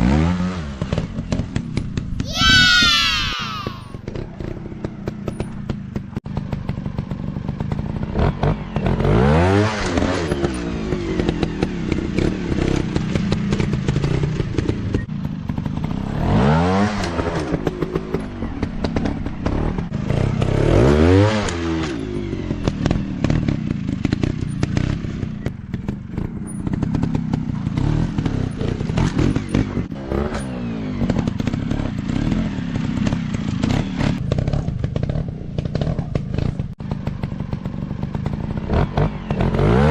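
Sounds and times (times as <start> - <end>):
dirt bike engine revving: 38.0 - 39.9.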